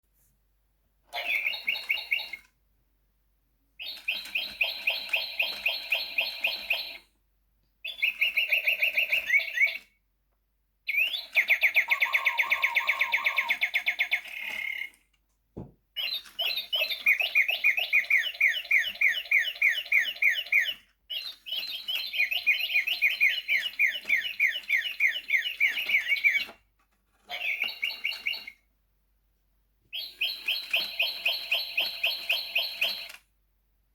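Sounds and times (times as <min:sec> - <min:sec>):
toy bird chirps and trills: 0:01.2 - 0:02.5, 0:03.8 - 0:07.0, 0:07.8 - 0:09.9, 0:10.9 - 0:15.0, 0:16.0 - 0:26.6, 0:27.3 - 0:28.6, 0:29.9 - 0:33.2.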